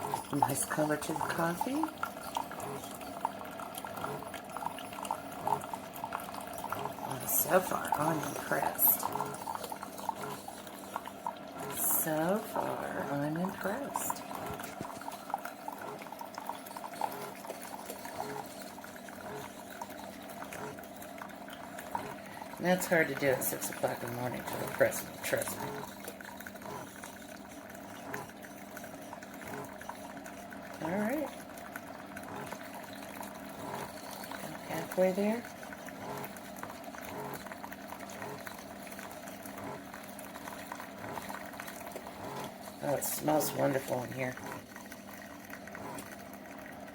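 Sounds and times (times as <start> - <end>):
coffee trickling and gurgling: 0.0 - 46.9.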